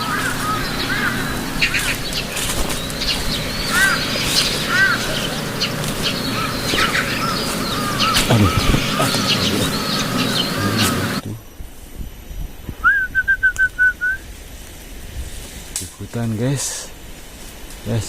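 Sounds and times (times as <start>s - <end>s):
higher quicker bird calls: 0.0s - 11.2s.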